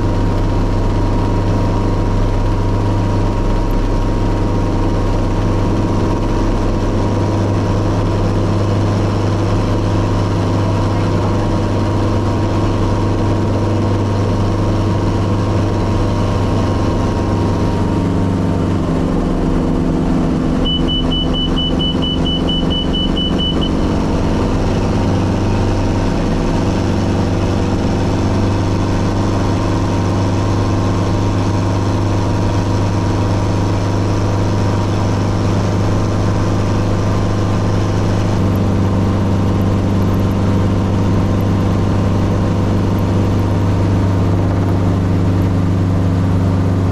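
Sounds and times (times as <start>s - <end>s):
helicopter engine and rotors: 0.0s - 46.9s
quick high beeps: 20.6s - 23.8s.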